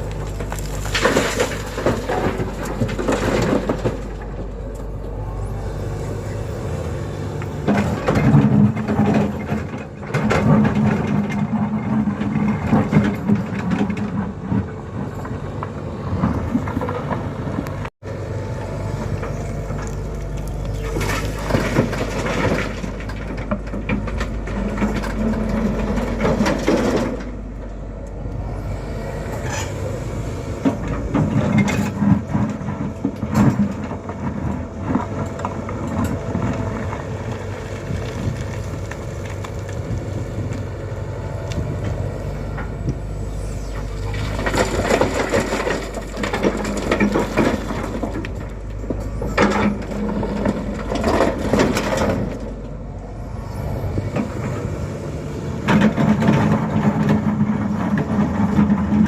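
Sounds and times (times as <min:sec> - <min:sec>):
excavator diesel engine running: 0:00.0 - 0:59.0
rough crunching surges: 0:14.1 - 0:59.0.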